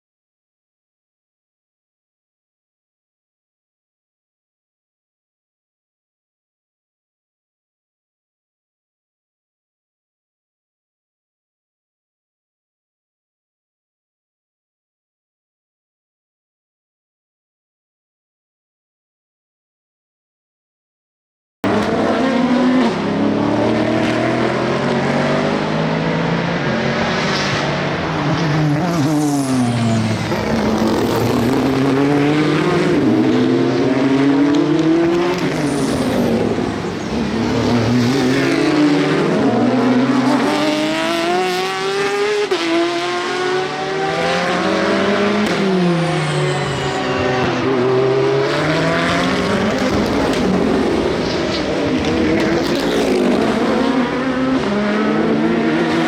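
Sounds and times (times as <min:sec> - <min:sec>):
race cars passing: 0:21.6 - 0:56.0.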